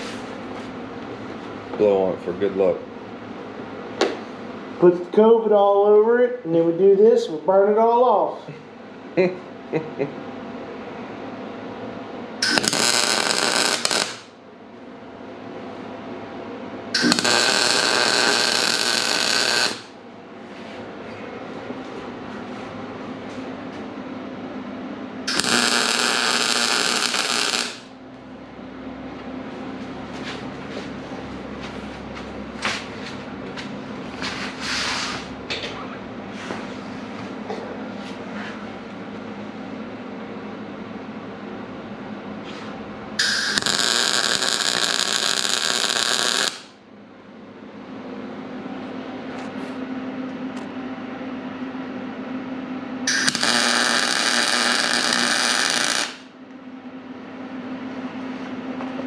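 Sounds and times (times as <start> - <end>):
steady machine hum: 0.0 - 59.0
welding arc crackling: 12.4 - 14.4, 17.0 - 20.0, 25.3 - 27.9, 43.2 - 46.8, 53.1 - 56.3.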